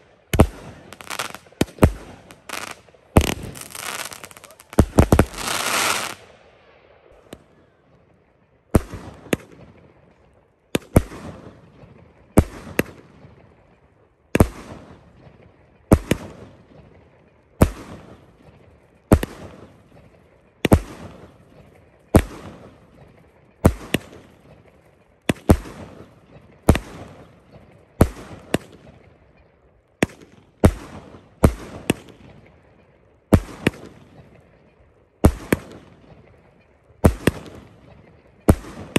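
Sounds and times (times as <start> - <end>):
fireworks bangs: 0.0 - 6.3
fireworks crackle: 0.0 - 6.3.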